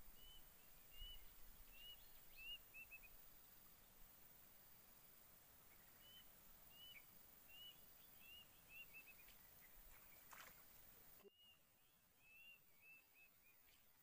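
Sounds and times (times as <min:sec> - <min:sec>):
faint bird chirping: 0:00.0 - 0:14.0
brief rustle: 0:09.3 - 0:10.9.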